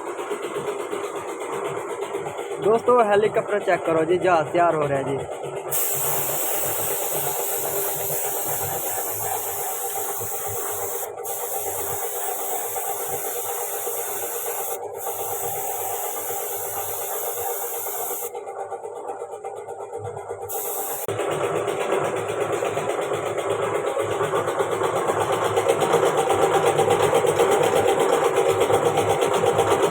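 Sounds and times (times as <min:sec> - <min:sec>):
hissing rasping noise: 0:05.7 - 0:18.3, 0:20.5 - 0:21.1.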